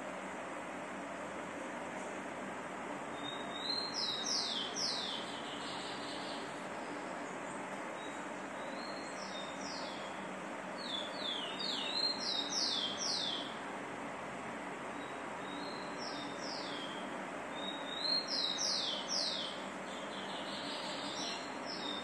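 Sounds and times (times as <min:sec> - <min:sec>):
songbird singing: 0:03.1 - 0:13.6, 0:14.9 - 0:22.0.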